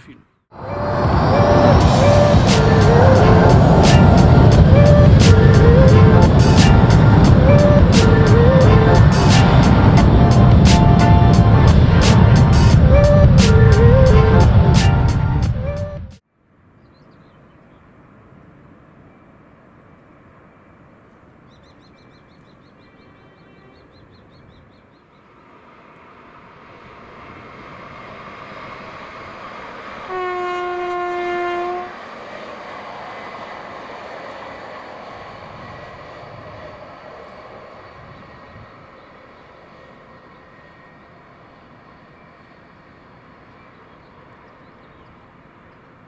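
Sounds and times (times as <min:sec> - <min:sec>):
passenger train passing: 0:00.0 - 0:16.2, 0:23.0 - 0:46.0
train horn blast: 0:00.6 - 0:16.1, 0:30.0 - 0:32.1.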